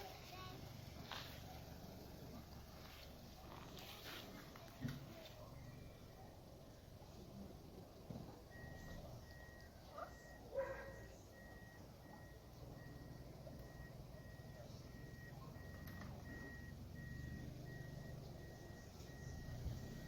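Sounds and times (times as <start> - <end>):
car engine idling: 0.0 - 20.0
reverse warning beeps: 5.4 - 6.4, 7.0 - 20.0.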